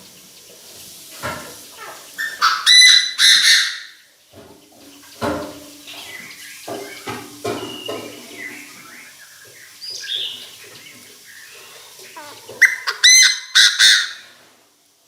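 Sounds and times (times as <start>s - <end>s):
francolin harsh calls: 1.6s - 4.1s, 5.9s - 14.4s.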